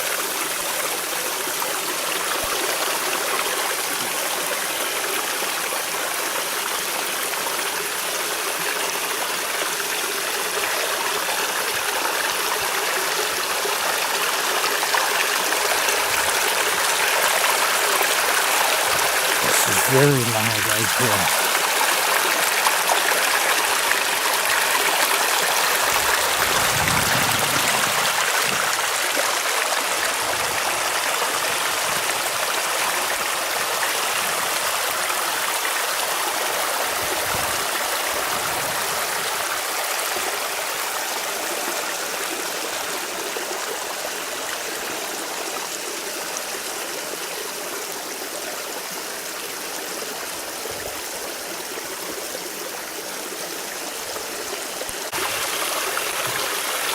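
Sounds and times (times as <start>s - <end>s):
waterfall rushing: 14.6s - 30.0s.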